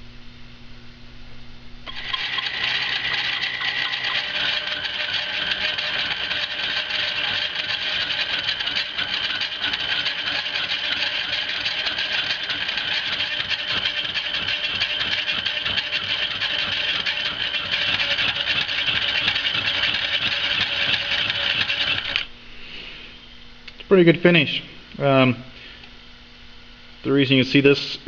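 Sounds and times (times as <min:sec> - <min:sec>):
lathe cutting metal: 0:01.9 - 0:22.3.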